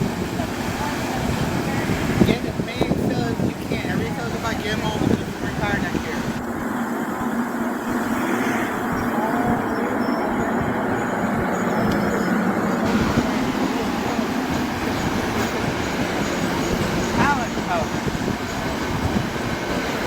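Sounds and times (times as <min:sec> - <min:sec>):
train wheels rumbling on rails: 0:07.8 - 0:20.0.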